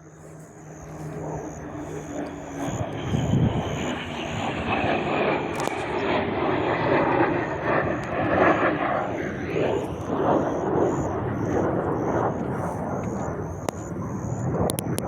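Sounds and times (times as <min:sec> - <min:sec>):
faint high whine: 0:00.0 - 0:15.0
jet engine roaring: 0:00.0 - 0:15.0.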